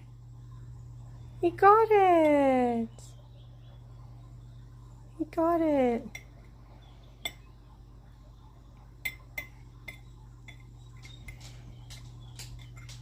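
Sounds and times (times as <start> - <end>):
steady low hum: 0.0 - 13.0
metal tweezers clicking on dish: 9.0 - 10.7.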